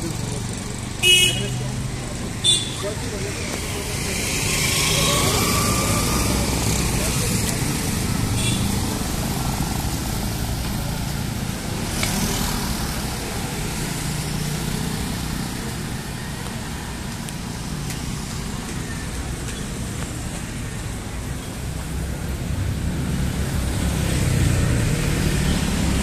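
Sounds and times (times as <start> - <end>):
rumble of passing vehicles: 0.0 - 26.0.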